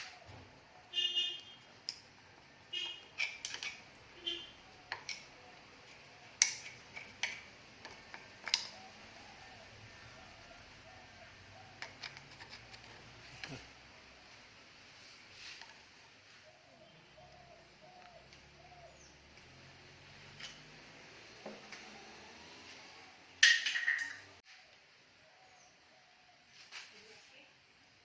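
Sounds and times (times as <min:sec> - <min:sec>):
hand tools clicking and tapping: 0:01.8 - 0:04.2, 0:04.8 - 0:09.3.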